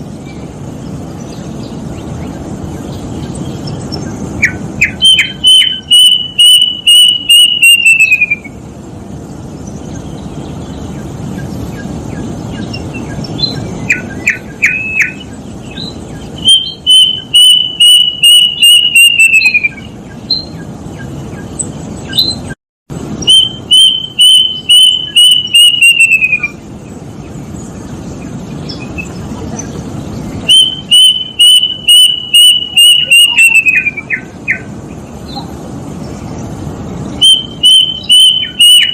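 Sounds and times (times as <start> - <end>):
cuckoo whistled notes: 4.8 - 8.5, 16.4 - 20.5, 23.3 - 26.6, 30.5 - 34.3, 37.2 - 38.9
short rising bird notes: 10.3 - 26.6, 37.2 - 38.9.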